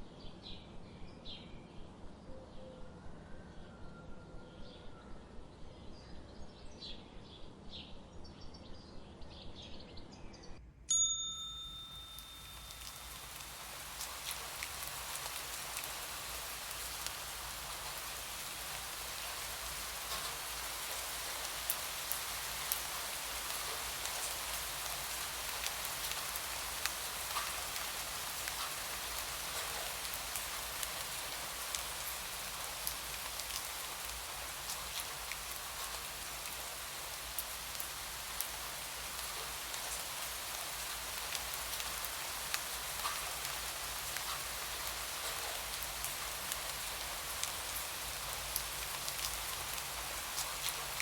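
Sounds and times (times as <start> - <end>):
bell chime: 10.9 - 13.3
steady rain: 11.5 - 51.0.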